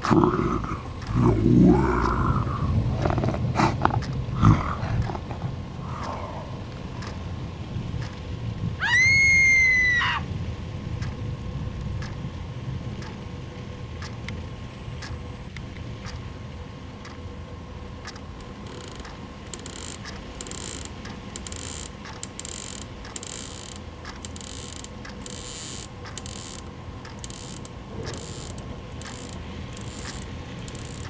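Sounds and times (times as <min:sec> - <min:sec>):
mechanical ticking: 0:00.0 - 0:10.2, 0:10.8 - 0:16.4, 0:17.0 - 0:31.0
bursts of high hiss: 0:00.0 - 0:11.3
low rumbling ambience: 0:00.0 - 0:19.5.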